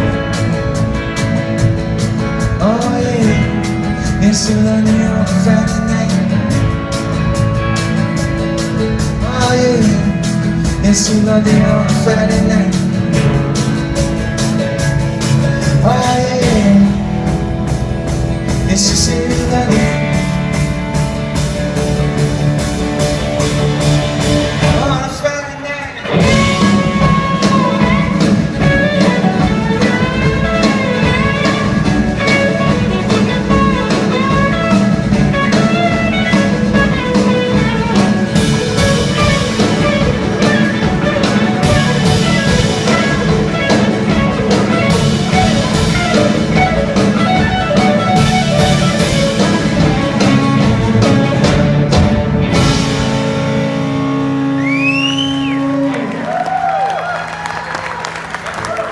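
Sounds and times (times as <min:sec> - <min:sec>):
rock band playing: 0:00.0 - 0:58.9.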